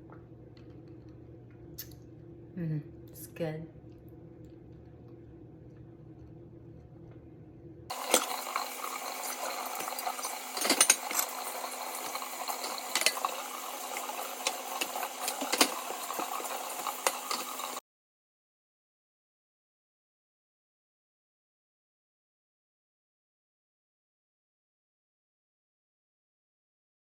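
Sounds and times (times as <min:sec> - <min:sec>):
glass clinking: 0:09.7 - 0:11.7, 0:12.6 - 0:13.3.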